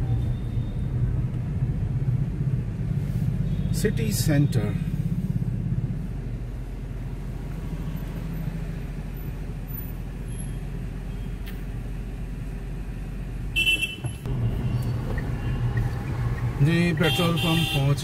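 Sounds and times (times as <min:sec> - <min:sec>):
car engine and road noise: 0:00.0 - 0:18.0
car horn toot: 0:13.6 - 0:14.8, 0:16.9 - 0:18.0.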